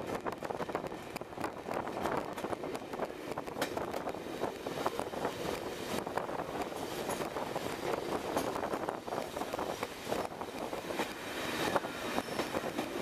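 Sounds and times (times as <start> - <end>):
train running on track: 0.0 - 13.0
wind buffeting microphone: 0.0 - 13.0.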